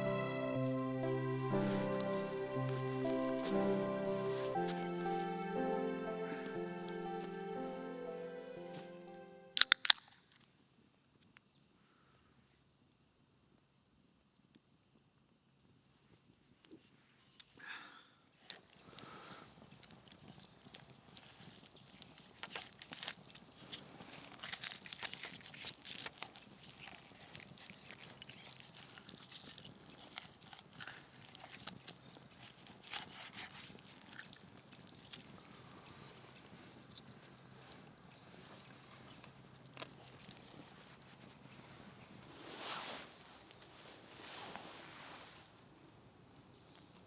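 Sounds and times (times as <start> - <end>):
chewing crunches and clicks: 18.5 - 41.5.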